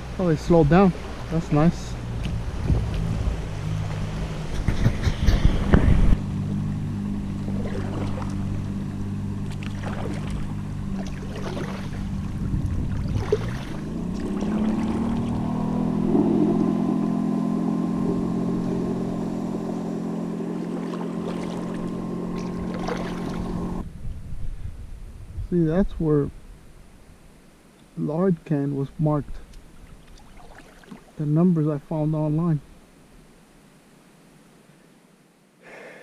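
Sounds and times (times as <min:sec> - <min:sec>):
motorboat engine: 0:00.0 - 0:24.0.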